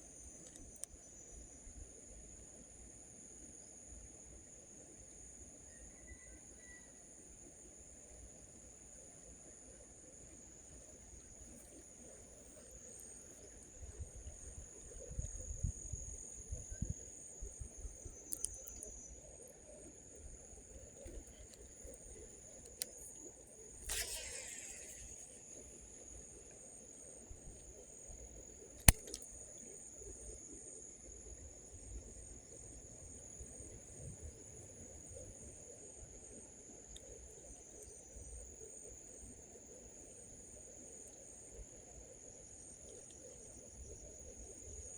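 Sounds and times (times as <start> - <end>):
insects trilling: 0.0 - 44.9
sharp click: 23.8 - 25.4, 28.8 - 29.3.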